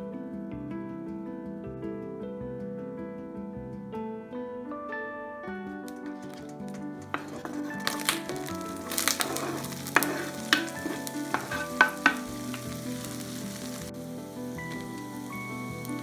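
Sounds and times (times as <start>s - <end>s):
garlic and onion sizzling in oil: 6.1s - 16.0s
wooden board knocking on pan: 7.1s - 13.1s.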